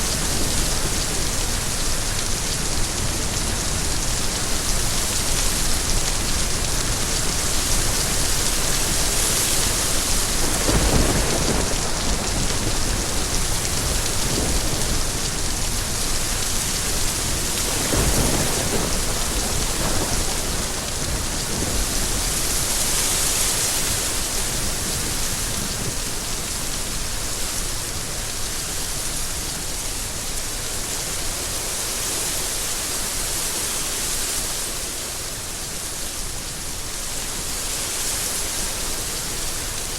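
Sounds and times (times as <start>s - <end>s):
steady rain falling: 0.0s - 39.9s
thunder rumbling: 10.0s - 22.4s.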